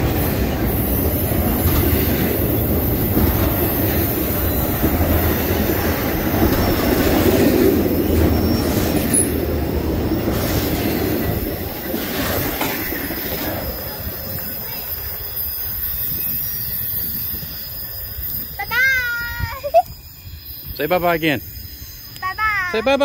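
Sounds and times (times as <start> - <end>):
freight train wheels rumbling on track: 0.0 - 23.0.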